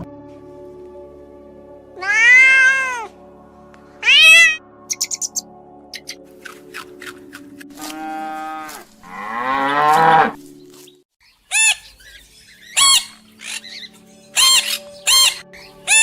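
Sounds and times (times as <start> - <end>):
animal squawking: 4.0 - 5.4, 12.7 - 16.0
cow mooing: 7.8 - 10.4.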